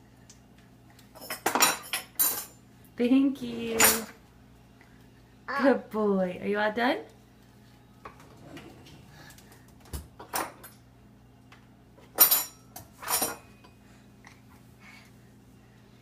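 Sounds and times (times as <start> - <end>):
dishes and cutlery clinking: 1.2 - 2.6, 3.6 - 4.2, 10.2 - 10.9, 12.0 - 13.8.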